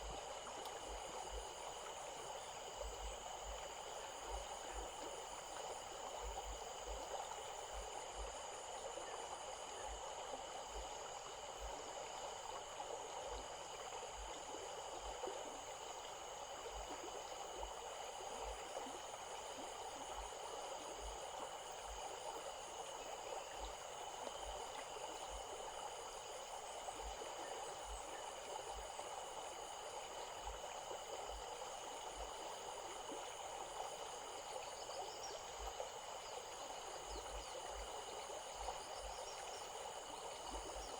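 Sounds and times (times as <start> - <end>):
stream water flowing: 0.0 - 40.9
high-pitched insect chorus: 0.1 - 40.9.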